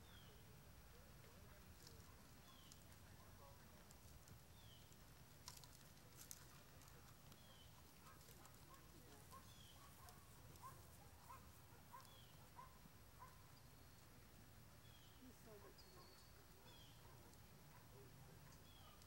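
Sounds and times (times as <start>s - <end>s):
bird chirps: 14.8s - 17.1s.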